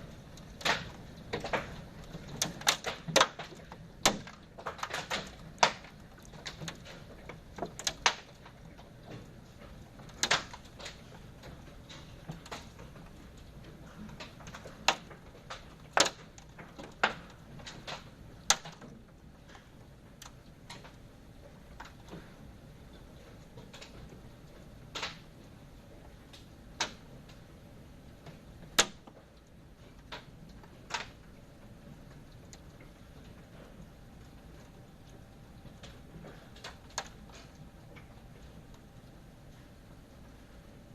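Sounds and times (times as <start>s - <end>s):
faint background hiss: 0.0s - 40.9s
faint steady background noise: 0.0s - 40.9s.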